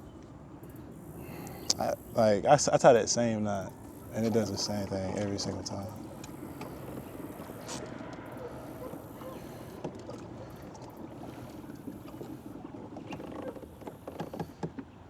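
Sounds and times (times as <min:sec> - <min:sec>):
water lapping against kayak hull: 0:00.0 - 0:15.0
gear clicks and knocks: 0:04.2 - 0:15.0.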